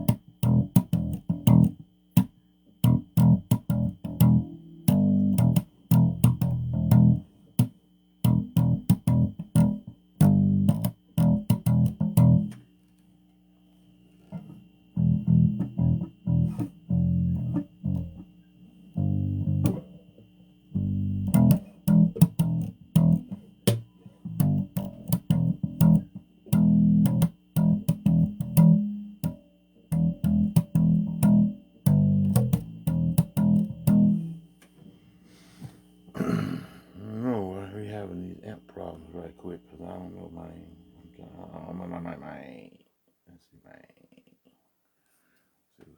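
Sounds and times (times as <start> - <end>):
electric bass guitar plucked: 0.0 - 12.7, 14.4 - 34.5.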